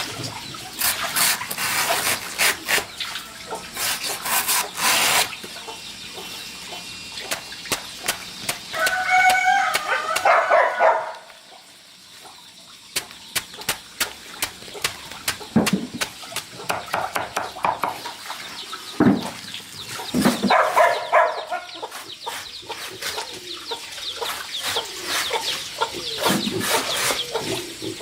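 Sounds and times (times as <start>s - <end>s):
chicken calling: 8.7s - 11.5s.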